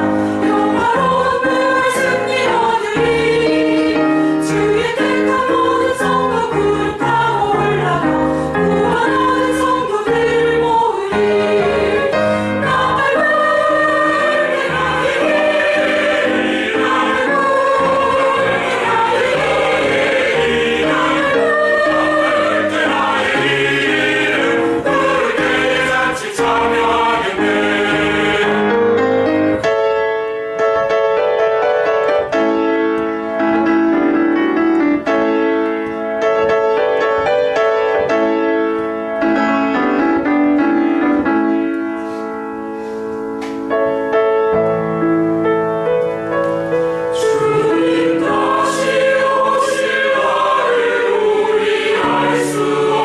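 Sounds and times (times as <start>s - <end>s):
choir singing a hymn: 0.0s - 29.5s, 46.6s - 53.0s
keyboard accompaniment: 0.0s - 53.0s
piano playing alone: 0.0s - 53.0s.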